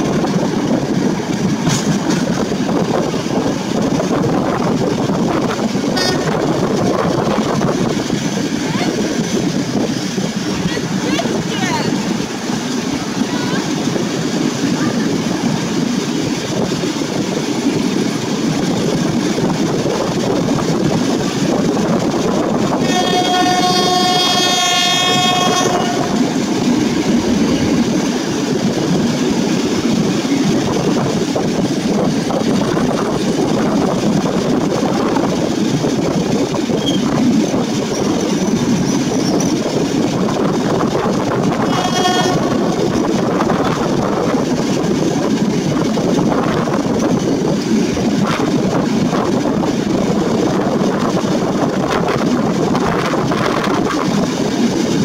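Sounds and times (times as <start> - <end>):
wheel-on-rail noise: 0.0 - 55.0
locomotive horn blasts: 6.0 - 6.4, 22.8 - 26.7, 41.6 - 42.8.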